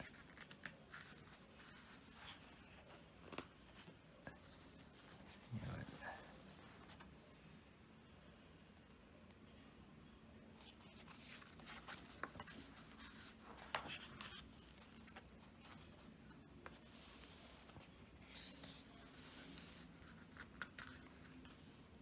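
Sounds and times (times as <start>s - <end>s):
pages rustling and turning: 0.0s - 7.4s, 10.6s - 22.0s.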